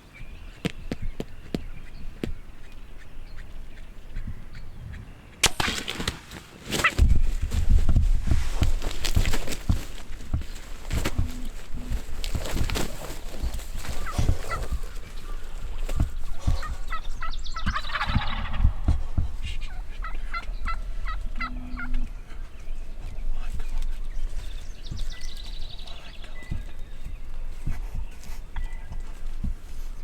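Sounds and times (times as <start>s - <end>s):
turkey gobbling: 13.8s - 22.1s
turkey yelps: 16.4s - 18.7s.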